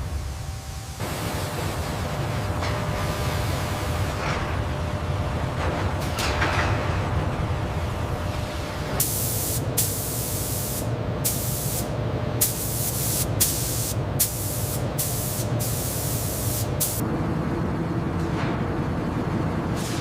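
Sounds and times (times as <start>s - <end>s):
low machine hum: 0.0s - 20.0s
hissing spray bursts: 9.0s - 17.0s.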